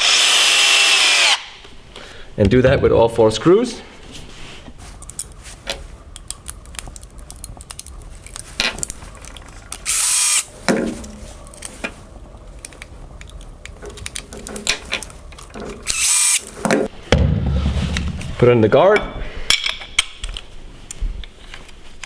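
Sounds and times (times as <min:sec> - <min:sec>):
cordless drill driving screws: 0:00.0 - 0:01.5, 0:09.9 - 0:10.5, 0:15.8 - 0:16.4
clicks and knocks of handling tools: 0:12.6 - 0:16.9.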